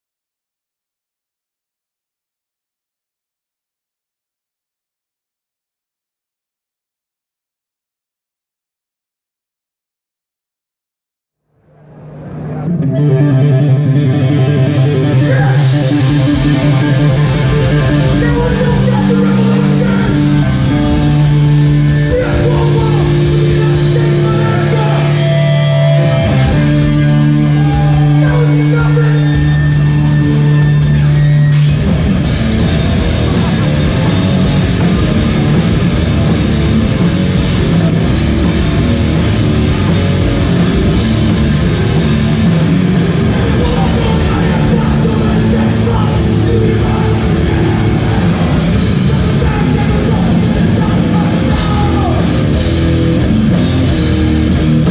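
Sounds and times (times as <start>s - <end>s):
distorted guitar chords: 11.6s - 54.9s
hardcore band playing live: 12.2s - 54.9s.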